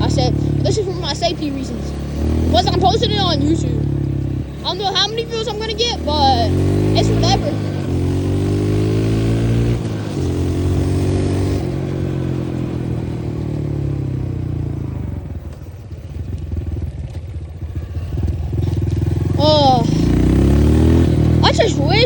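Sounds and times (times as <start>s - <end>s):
dirt bike engine: 0.0s - 22.0s.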